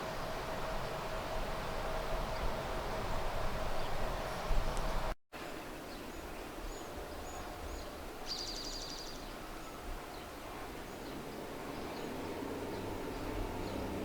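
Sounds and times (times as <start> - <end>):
outdoor background noise: 0.0 - 14.0
bird trill: 6.1 - 9.8.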